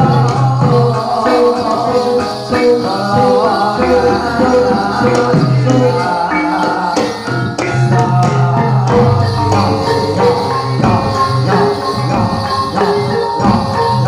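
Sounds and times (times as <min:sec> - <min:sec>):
drum and rattle percussion: 0:00.0 - 0:14.0
gamelan ensemble playing: 0:00.0 - 0:14.0.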